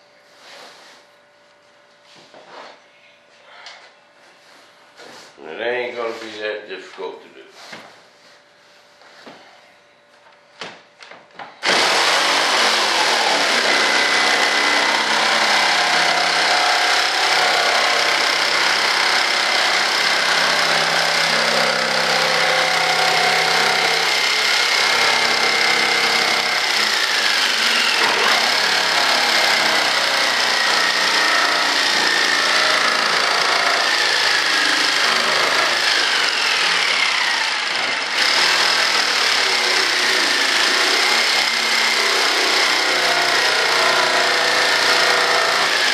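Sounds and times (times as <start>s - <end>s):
power tool running: 11.6s - 45.9s.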